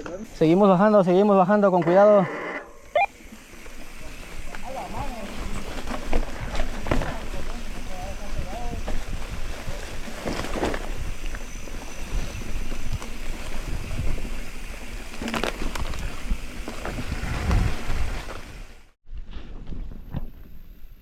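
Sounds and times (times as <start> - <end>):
bike tyres crunching over dirt: 3.1 - 21.0
wind buffeting microphone: 3.9 - 18.7.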